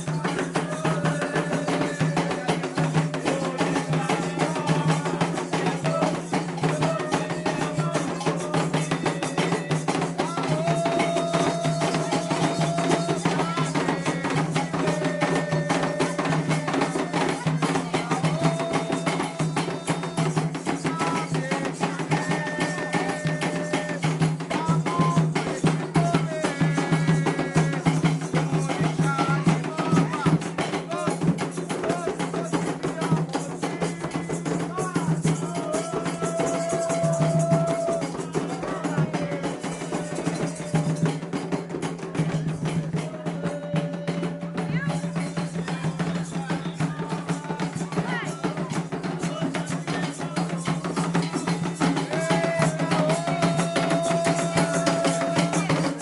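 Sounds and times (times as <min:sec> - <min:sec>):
hand drums beating fast rhythm: 0:00.0 - 0:56.0
struck percussion bell: 0:00.0 - 0:56.0
voices singing long notes: 0:49.3 - 0:56.0.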